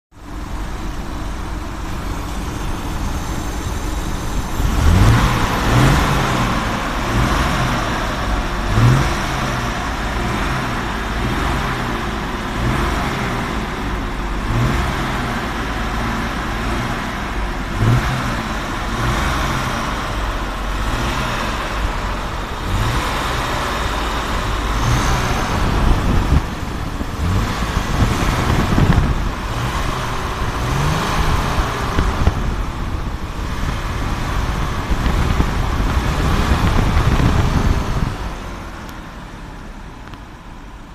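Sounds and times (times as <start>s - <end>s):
car engine idling up close: 0.1s - 40.9s.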